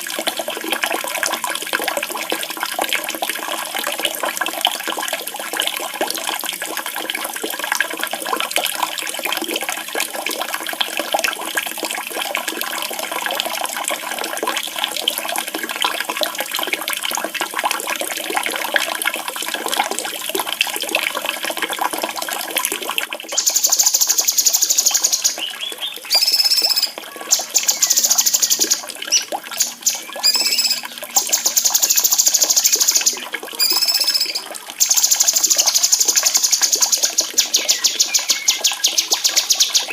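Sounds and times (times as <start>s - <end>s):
running splashing water: 0.0s - 39.9s
songbird trilling: 23.3s - 39.9s.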